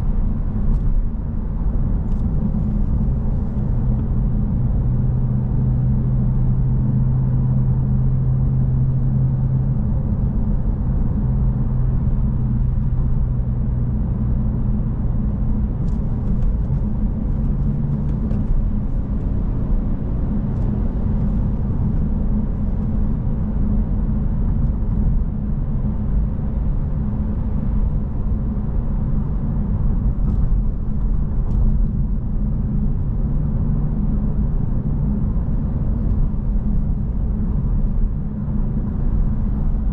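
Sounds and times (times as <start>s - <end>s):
car engine droning: 0.0s - 39.9s
tyre and road rumble: 0.0s - 39.9s.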